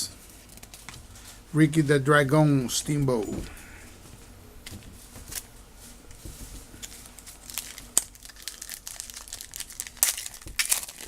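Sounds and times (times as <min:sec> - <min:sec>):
card wrapper crinkling and tearing: 0:06.8 - 0:11.0.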